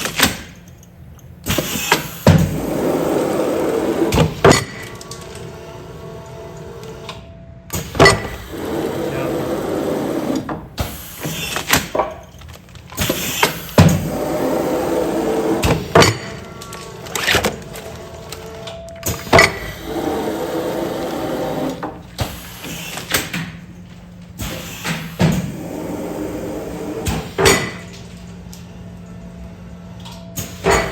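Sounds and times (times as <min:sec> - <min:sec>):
machine clunks and knocks: 0:07.7 - 0:08.7
steady machine noise: 0:07.9 - 0:10.6.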